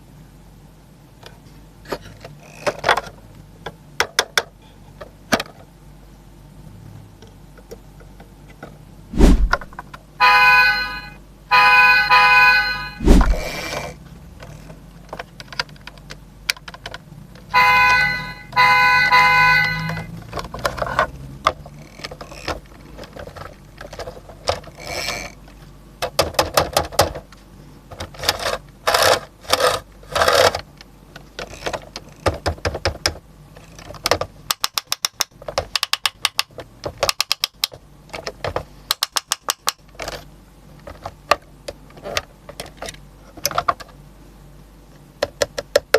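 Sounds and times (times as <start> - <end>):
electronic horn tone: 10.2 - 13.0, 17.5 - 20.1.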